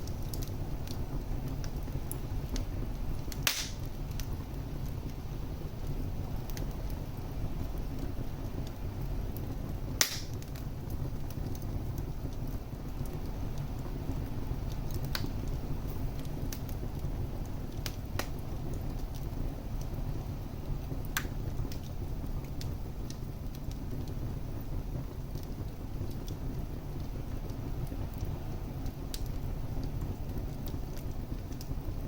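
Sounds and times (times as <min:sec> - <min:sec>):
fire crackles and pops: 0:00.0 - 0:32.0
low rumble of flames: 0:00.0 - 0:32.0.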